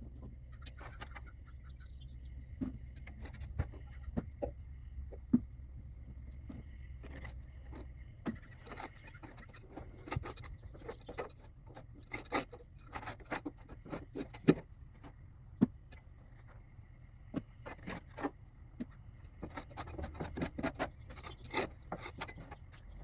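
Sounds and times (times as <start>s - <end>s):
hand tools scraping metal: 7.0s - 15.2s, 19.3s - 23.0s.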